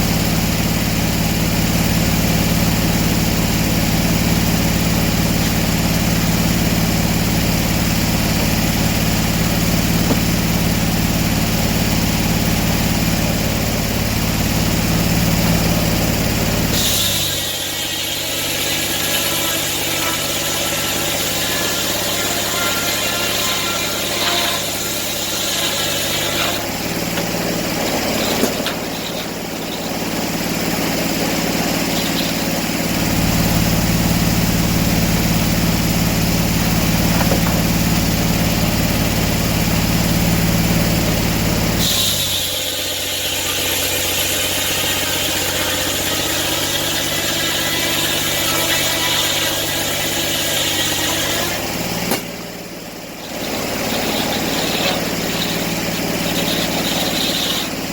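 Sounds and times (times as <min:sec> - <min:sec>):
engine humming: 0:00.0 - 0:57.9.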